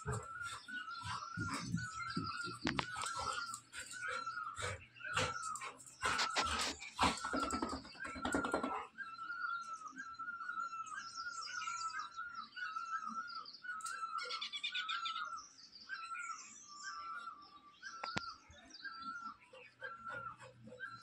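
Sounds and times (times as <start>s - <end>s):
small birds chirping: 0.0s - 21.0s
dog snarling: 4.1s - 7.9s.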